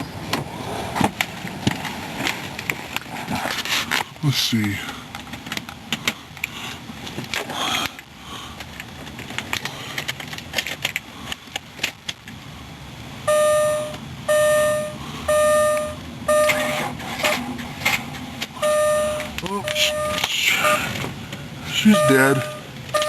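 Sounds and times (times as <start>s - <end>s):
car warning chime dinging: 13.3s - 17.4s, 18.6s - 21.0s, 21.7s - 23.0s
keys clicking and clunking: 15.7s - 21.1s.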